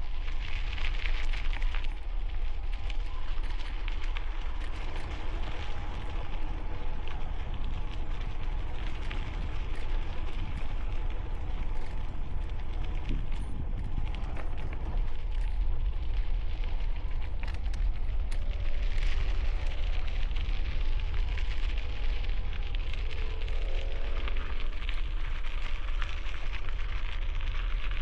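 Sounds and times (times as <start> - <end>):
bicycle tires on gravel: 0.0 - 28.0
wind buffeting microphone: 1.8 - 24.2.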